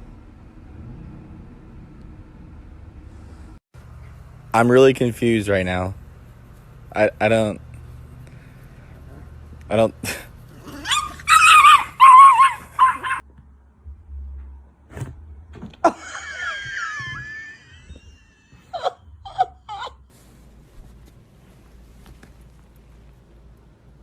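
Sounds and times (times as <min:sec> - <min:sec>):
animal whining call: 0:10.6 - 0:13.2
high gliding squeaky tones: 0:17.2 - 0:19.6.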